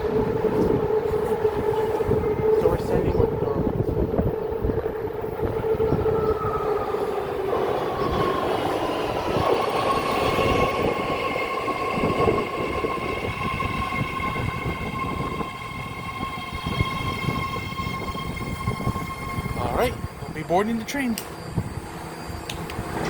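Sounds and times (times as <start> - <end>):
train rumbling: 0.0 - 23.0
high-pitched whines: 5.2 - 23.0.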